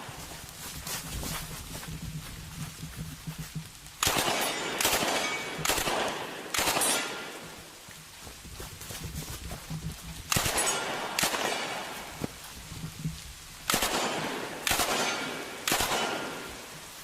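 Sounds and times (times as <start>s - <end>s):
steady rain: 0.0s - 17.0s
gunshots echoing: 4.0s - 7.6s, 10.3s - 12.1s, 13.7s - 16.7s.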